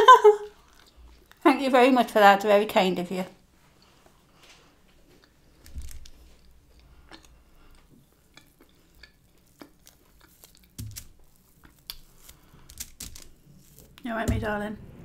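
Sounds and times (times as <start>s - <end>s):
chewing: 0.4s - 1.4s, 3.7s - 14.0s
chicken pulled apart crackling: 5.6s - 7.8s, 8.4s - 14.0s
low bumps: 13.8s - 15.0s.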